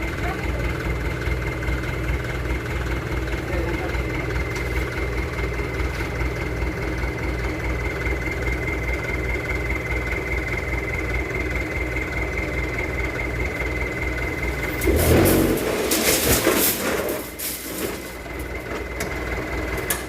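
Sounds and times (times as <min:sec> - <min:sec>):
diesel engine idling: 0:00.0 - 0:20.0
clanking clatter: 0:14.5 - 0:20.0.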